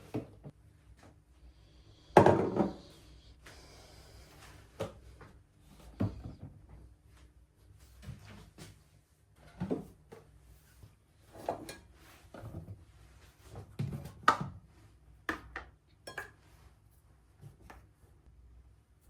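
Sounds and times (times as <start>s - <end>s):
dishes and utensils clinking: 16.0s - 16.4s.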